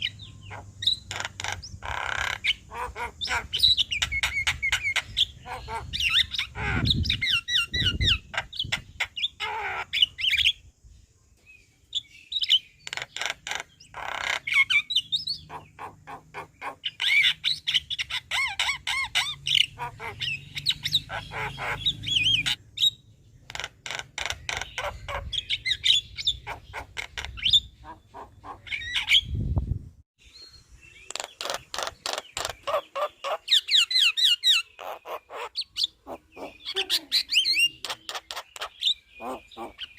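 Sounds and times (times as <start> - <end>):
myna chattering and singing: 36.0 - 39.9.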